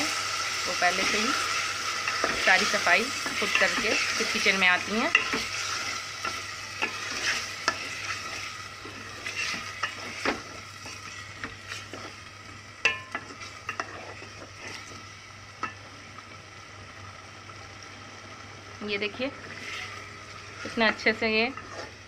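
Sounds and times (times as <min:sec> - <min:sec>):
chicken sizzling in oil: 0:00.0 - 0:22.0
wooden spoon scraping a pot: 0:00.7 - 0:12.2, 0:12.9 - 0:15.0, 0:19.3 - 0:22.0.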